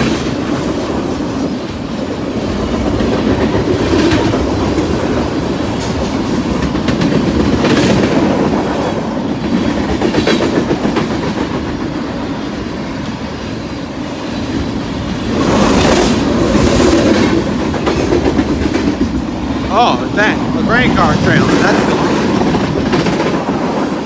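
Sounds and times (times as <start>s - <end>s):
wheels clicking over rail joints: 0.0s - 12.1s
freight train wheels rumbling: 0.0s - 24.0s.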